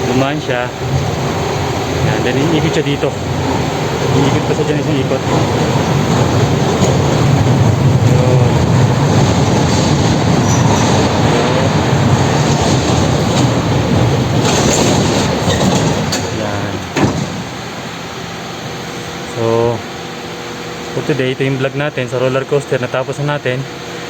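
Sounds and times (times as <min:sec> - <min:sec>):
roller coaster wheels rumbling: 0:00.0 - 0:24.0
faint wheel squeals: 0:04.0 - 0:17.7.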